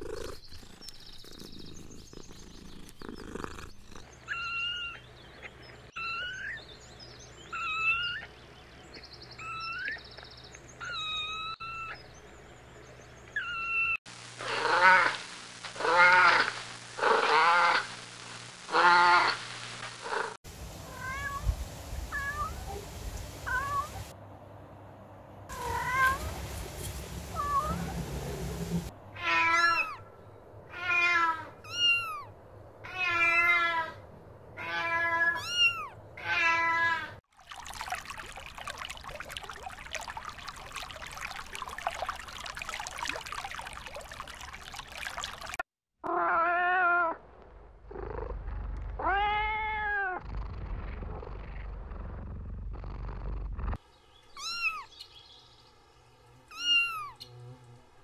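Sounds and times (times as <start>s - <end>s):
kittens meowing: 34.6s - 37.1s, 54.4s - 54.9s, 56.5s - 57.2s.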